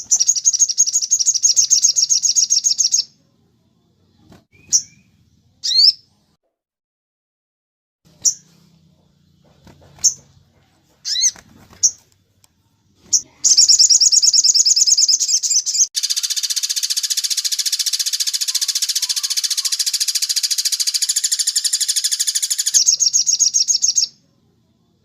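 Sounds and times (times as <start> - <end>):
songbird chirps: 0.0 - 6.4, 8.1 - 25.0
harsh buzzing bird rattle: 13.1 - 23.2
fast high bird trill: 13.1 - 24.1.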